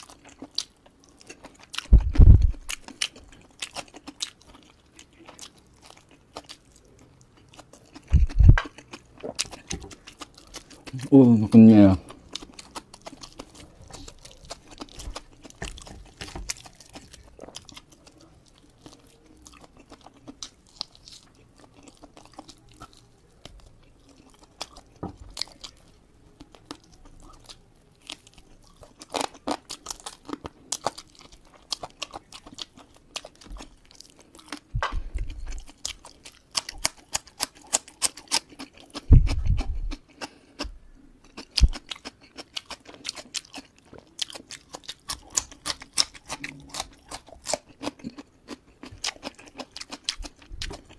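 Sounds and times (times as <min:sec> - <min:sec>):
chewing with wet mouth clicks: 0:00.0 - 0:11.1, 0:12.0 - 0:50.9
crunching bite: 0:35.2 - 0:50.9.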